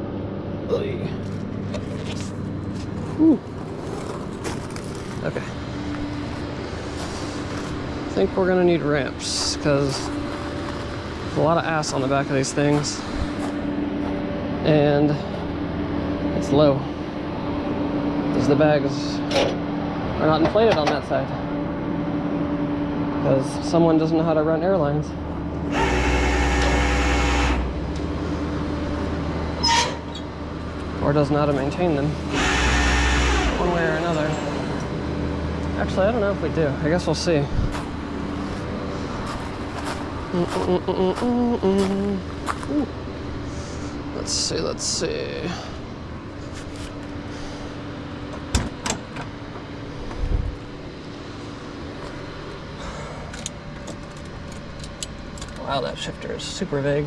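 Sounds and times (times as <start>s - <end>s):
engine rumbling: 0.0s - 57.0s
steady low hum: 0.0s - 57.0s.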